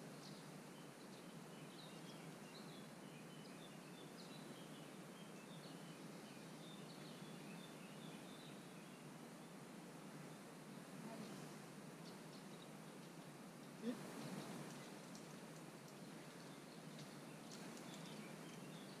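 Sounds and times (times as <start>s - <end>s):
faint outdoor hiss: 0.0s - 19.0s
small bird chirping: 11.0s - 19.0s.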